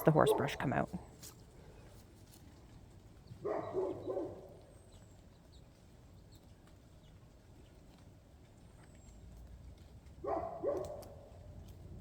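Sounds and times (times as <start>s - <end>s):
faint small ticks: 5.7s - 12.0s.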